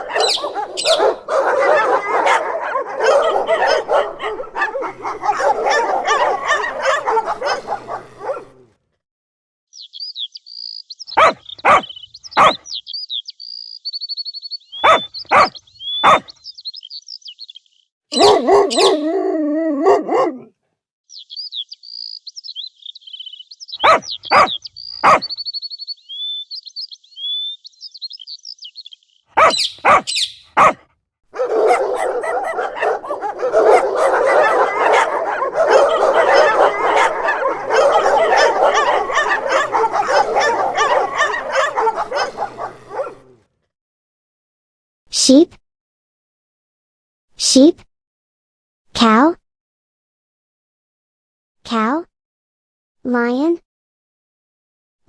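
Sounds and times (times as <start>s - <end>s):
high chirping: 0.0s - 8.4s, 31.4s - 43.2s
wavering cry: 0.0s - 8.6s, 31.4s - 43.3s
dog barking: 0.0s - 8.7s, 11.2s - 12.7s, 14.8s - 16.3s, 18.1s - 19.0s, 19.8s - 20.5s, 23.8s - 25.3s, 29.4s - 30.8s, 31.4s - 43.4s.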